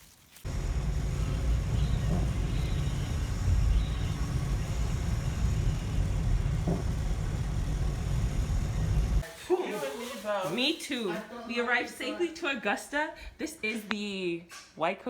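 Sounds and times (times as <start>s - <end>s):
car road and engine rumble: 0.5s - 9.2s.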